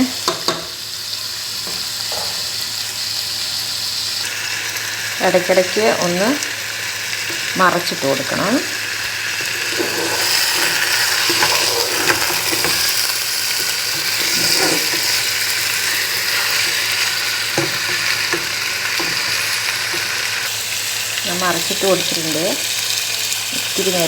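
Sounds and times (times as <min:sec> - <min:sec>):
chicken sizzling in oil: 0:00.0 - 0:24.0
spatula scraping a pan: 0:09.0 - 0:20.5.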